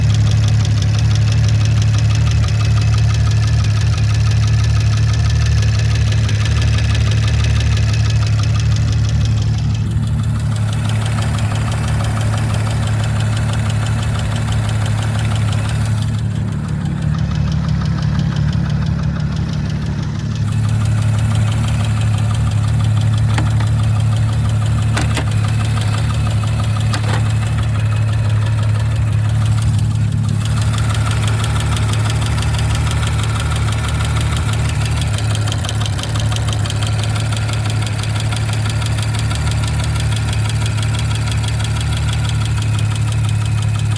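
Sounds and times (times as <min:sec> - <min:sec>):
car engine idling: 0:00.0 - 0:43.9
fast regular ticking: 0:05.9 - 0:43.9
sharp clicks: 0:14.3 - 0:35.7.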